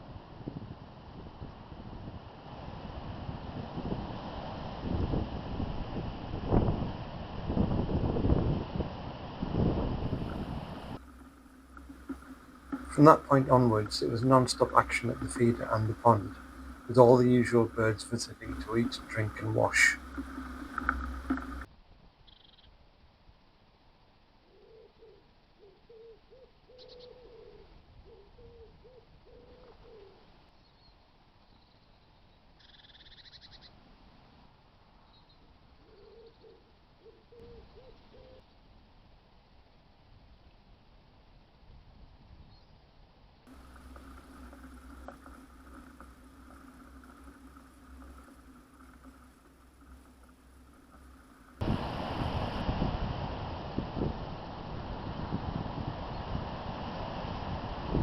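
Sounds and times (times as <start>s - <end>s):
steady low hum: 0.0s - 21.7s, 43.3s - 58.0s
wind on microphone: 0.0s - 21.7s, 43.5s - 58.0s
faint steady tones: 10.0s - 32.8s, 43.4s - 56.4s
faint clicks: 11.0s - 21.7s, 43.5s - 51.6s
small bird chirp: 22.2s - 22.7s, 24.5s - 33.7s, 35.0s - 38.5s
pigeon cooing: 35.9s - 38.4s.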